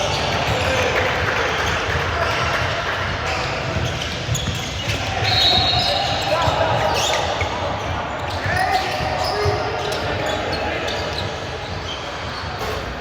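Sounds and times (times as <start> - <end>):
voices of players and spectators: 0.0 - 13.0
high-pitched shoe squeaks: 8.3 - 13.0.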